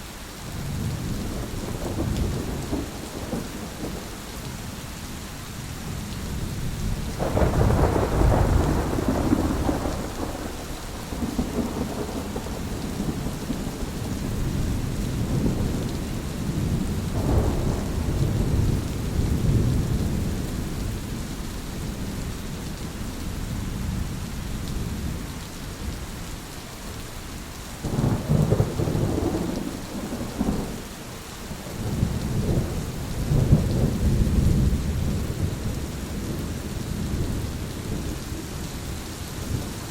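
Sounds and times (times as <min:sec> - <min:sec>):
steady rain: 0:00.0 - 0:39.9
rolling thunder: 0:00.7 - 0:04.6, 0:06.3 - 0:22.6, 0:27.8 - 0:30.9, 0:31.6 - 0:38.6.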